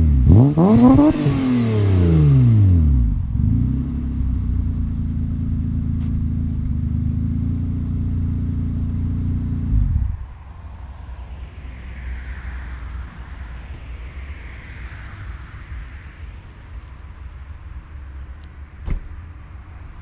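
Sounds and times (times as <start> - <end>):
low background rumble: 1.8 - 20.0
car engine idling: 2.9 - 11.8.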